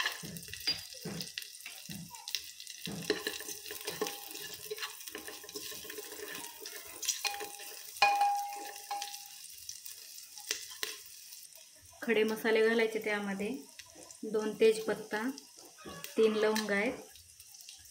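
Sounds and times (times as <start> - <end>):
food sizzling in hot oil: 0.0 - 17.9.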